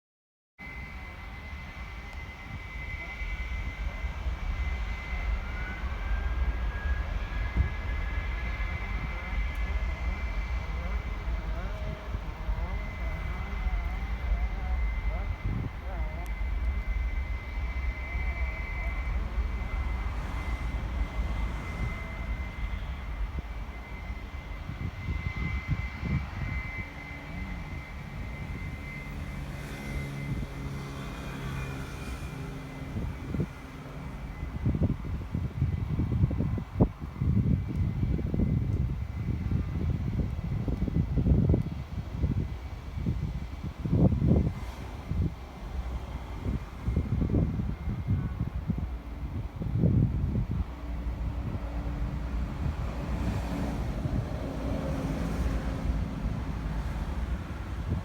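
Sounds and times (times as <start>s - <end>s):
rising engine tone: 0.6s - 36.2s
aircraft engine whine: 0.6s - 58.0s
low engine rumble: 0.6s - 58.0s.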